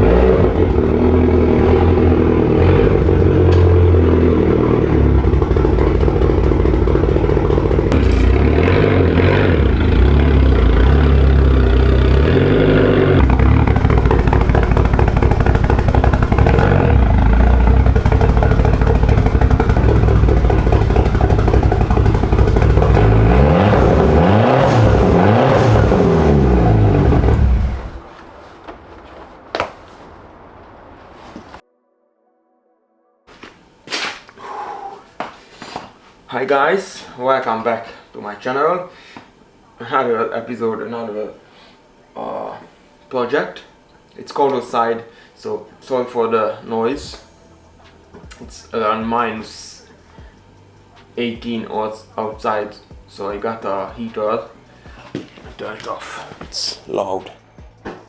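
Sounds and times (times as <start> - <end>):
car engine revving: 0.0 - 28.1.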